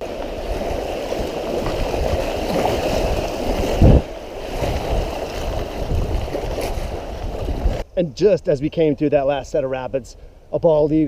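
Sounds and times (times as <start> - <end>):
wind buffeting microphone: 0.0 - 7.9.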